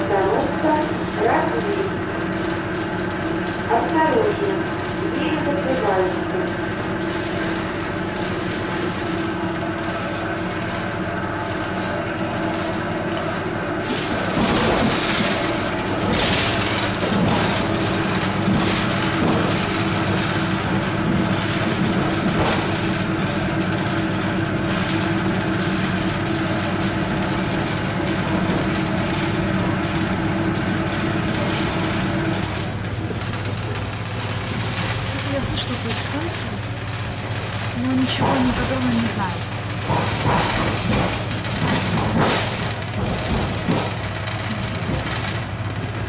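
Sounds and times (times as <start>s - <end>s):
train motor hum: 0.0s - 46.0s
train wheel and track noise: 0.0s - 46.0s
wheels knocking over rail joints: 11.5s - 46.0s.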